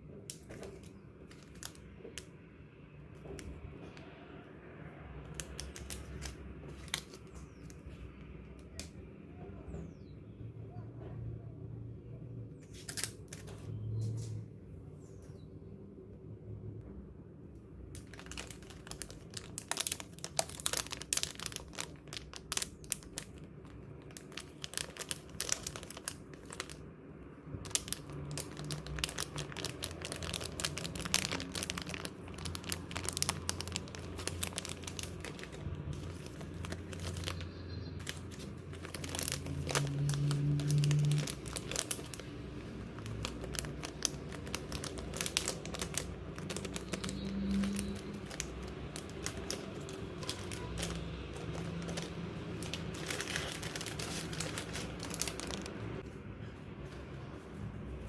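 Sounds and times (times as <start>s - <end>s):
packaging crinkling: 0.3s - 2.3s, 5.3s - 7.9s, 12.6s - 13.6s, 18.0s - 26.8s, 27.6s - 56.0s.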